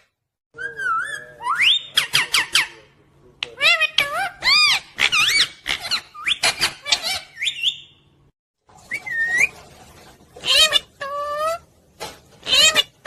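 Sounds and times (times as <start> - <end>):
parrot chirping and squawking: 0.7 - 8.1, 10.3 - 13.0.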